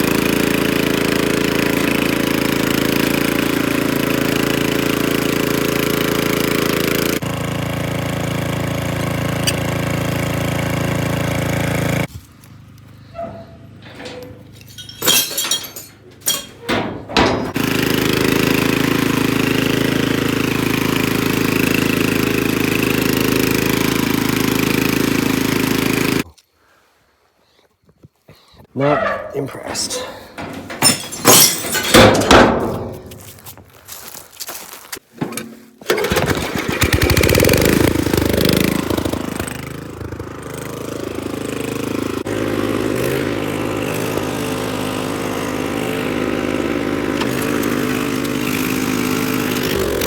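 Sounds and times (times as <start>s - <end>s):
rototiller engine running: 0.0s - 26.2s, 28.8s - 34.2s, 35.1s - 50.0s
sharp clinks and knocks: 13.8s - 17.6s, 28.9s - 33.6s.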